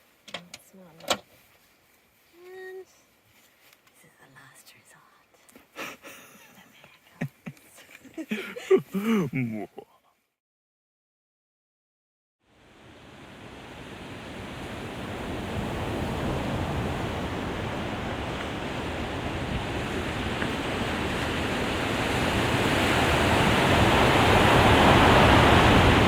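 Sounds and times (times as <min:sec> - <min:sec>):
ocean surf on a beach: 0:12.5 - 0:26.0.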